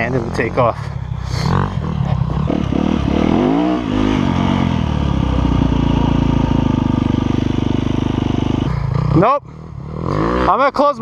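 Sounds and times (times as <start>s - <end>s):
dirt bike engine revving: 0.0s - 10.9s.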